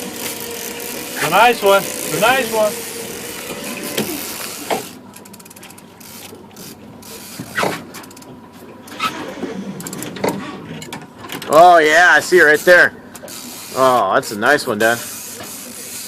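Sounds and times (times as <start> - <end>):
fishing reel ratchet clicking: 0.0 - 8.3, 12.4 - 14.0, 14.8 - 16.0.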